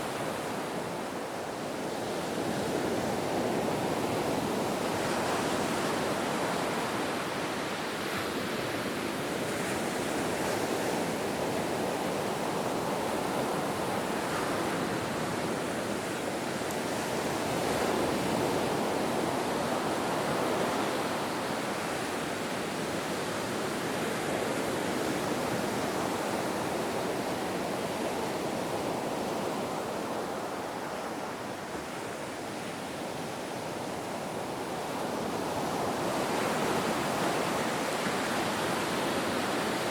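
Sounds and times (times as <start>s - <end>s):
ocean surf breaking waves: 17.1s - 39.9s.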